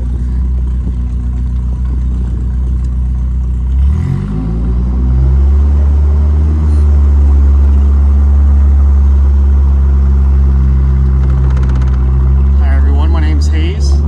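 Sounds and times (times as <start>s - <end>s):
car engine droning: 0.0s - 14.0s.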